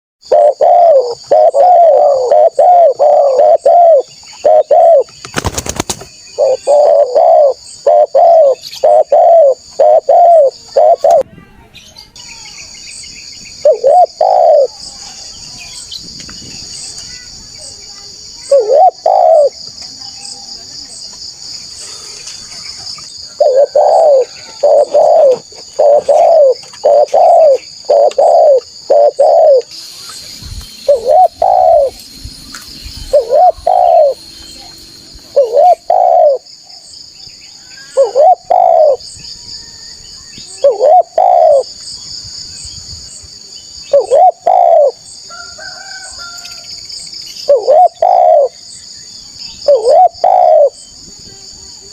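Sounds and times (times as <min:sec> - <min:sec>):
dove cooing: 0:00.2 - 0:05.1, 0:06.3 - 0:11.2, 0:13.6 - 0:14.8, 0:18.4 - 0:19.6, 0:23.2 - 0:29.7, 0:30.9 - 0:32.0, 0:33.0 - 0:34.2, 0:35.3 - 0:36.5, 0:37.9 - 0:39.0, 0:40.5 - 0:41.6, 0:43.9 - 0:45.0, 0:47.5 - 0:48.6, 0:49.7 - 0:50.8.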